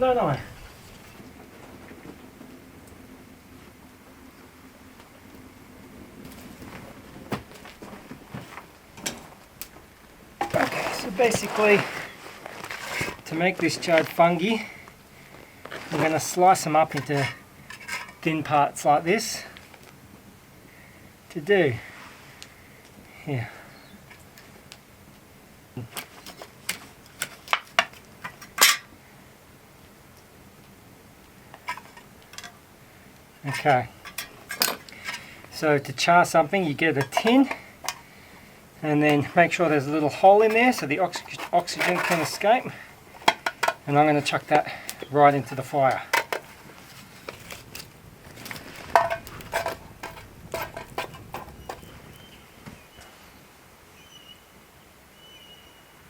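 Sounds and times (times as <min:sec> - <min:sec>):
metal tin knocking on wood and stones: 0:34.0 - 0:35.2, 0:36.9 - 0:38.0, 0:43.2 - 0:44.4, 0:46.0 - 0:46.6, 0:48.8 - 0:51.9.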